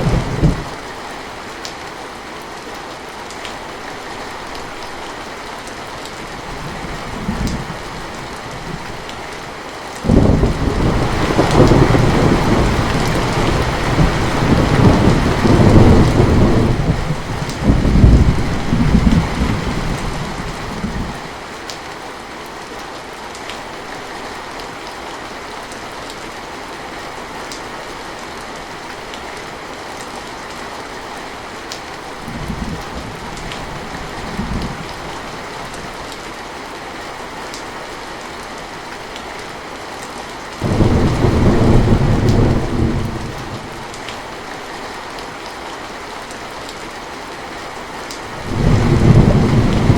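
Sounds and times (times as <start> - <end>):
thunder rumbling: 0.0 - 0.7, 10.1 - 21.2, 40.6 - 44.1, 48.4 - 49.9
heavy rain: 0.0 - 49.9.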